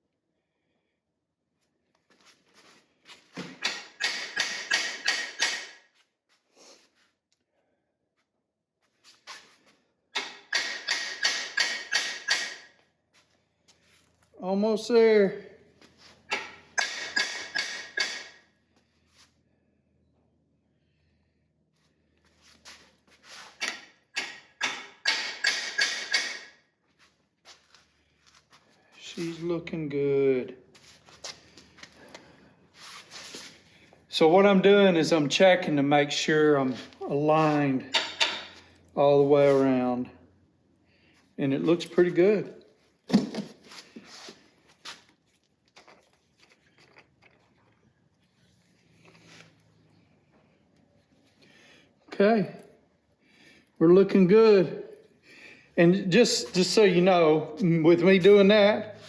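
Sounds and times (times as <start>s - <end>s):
hammer striking metal: 3.6s - 5.8s, 10.2s - 12.7s, 16.3s - 18.4s, 24.2s - 26.5s.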